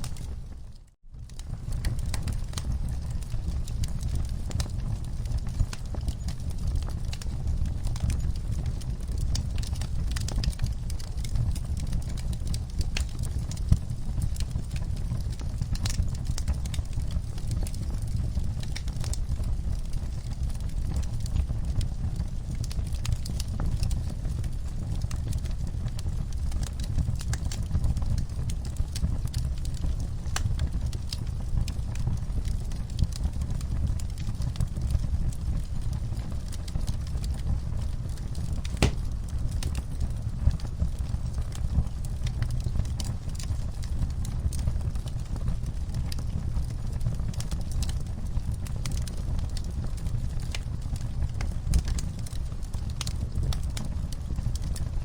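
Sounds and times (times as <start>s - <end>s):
fire crackling and popping: 0.0s - 55.0s
loud fire pop: 38.7s - 39.4s.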